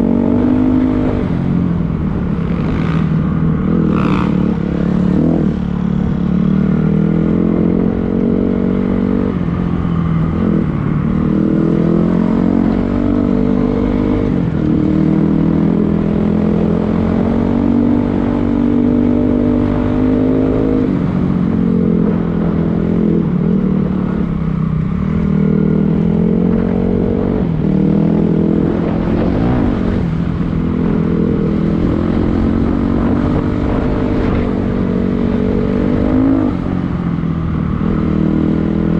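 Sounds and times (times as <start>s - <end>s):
dirt bike engine revving: 2.4s - 5.6s.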